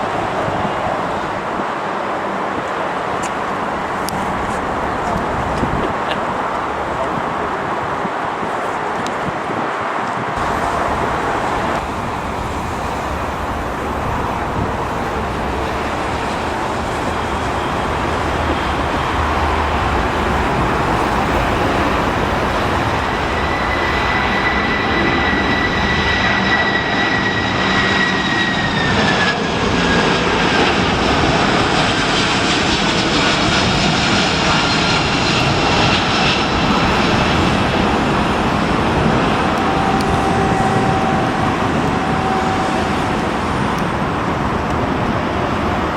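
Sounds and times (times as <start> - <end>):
jet engines roaring: 0.0 - 45.9
high engine whine: 10.0 - 45.9.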